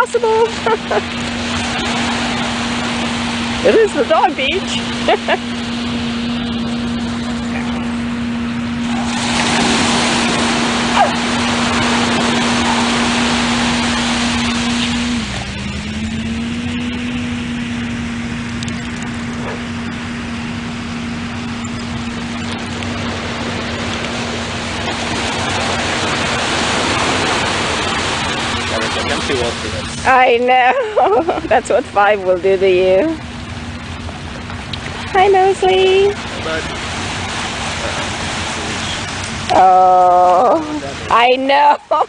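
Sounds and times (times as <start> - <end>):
broad rushing noise: 0.0 - 42.0
heavy machine engine humming: 0.0 - 42.0.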